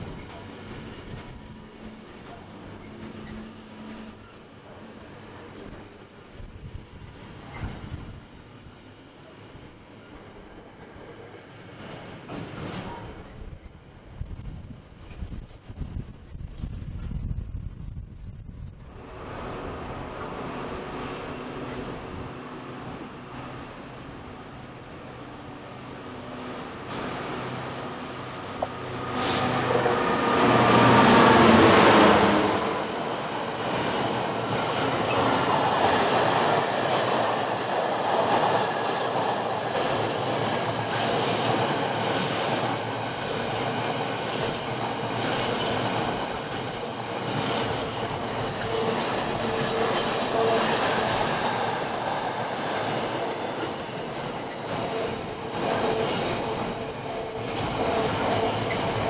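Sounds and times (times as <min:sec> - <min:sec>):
train wheels rumbling on rails: 0:00.0 - 0:59.0
diesel locomotive engine passing: 0:18.2 - 0:59.0.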